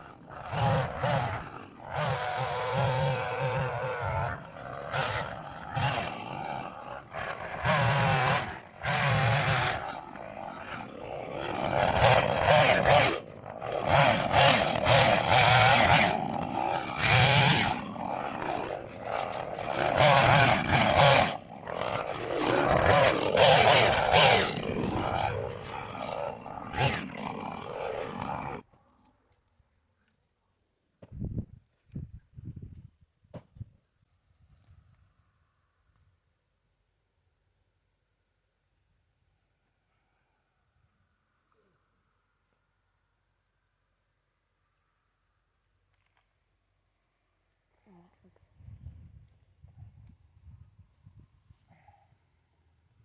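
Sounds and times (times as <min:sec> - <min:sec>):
chainsaw revving: 0:00.0 - 0:28.7.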